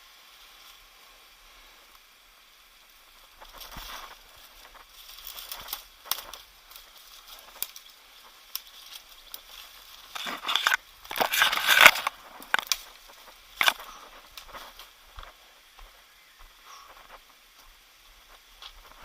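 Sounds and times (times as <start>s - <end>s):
faint steady hiss: 0.0s - 19.0s
crunching and crackling: 3.0s - 16.0s.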